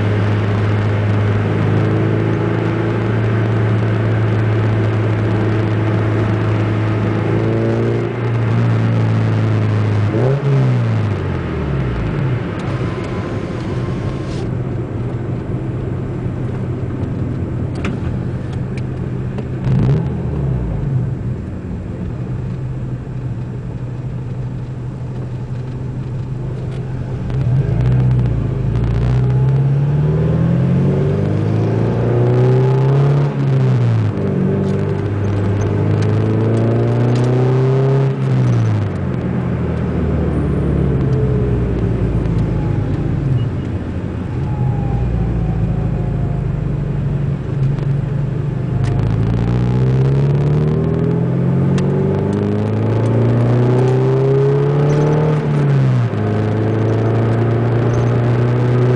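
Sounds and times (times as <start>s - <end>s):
car engine revving: 0.0s - 21.5s, 24.3s - 58.9s.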